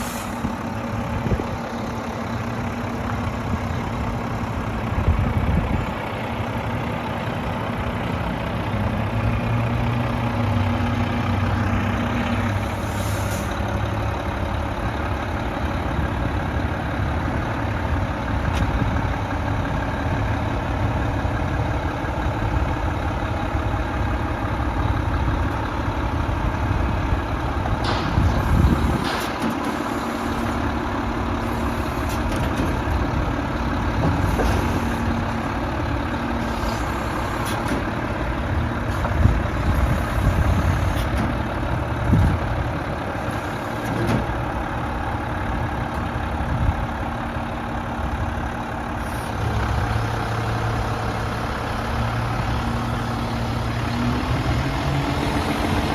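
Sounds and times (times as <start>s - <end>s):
diesel engine running: 0.0s - 55.9s
sharp clicks and knocks: 27.7s - 30.0s.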